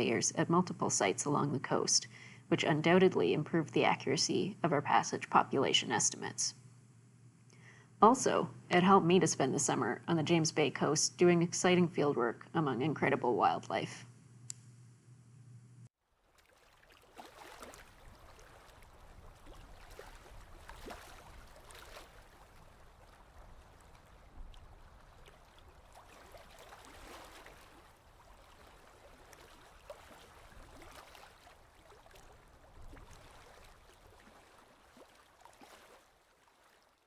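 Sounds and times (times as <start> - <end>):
water lapping and gurgling: 16.0 - 37.0
small ticks and splashes: 16.1 - 37.0.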